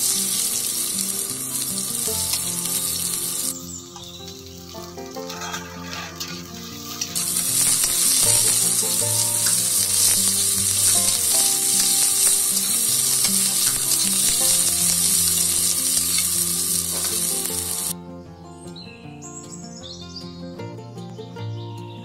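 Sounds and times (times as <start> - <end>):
onions sizzling in hot oil: 0.0 - 18.0
background music: 0.0 - 22.0
metal spatula scraping pan: 5.2 - 14.0.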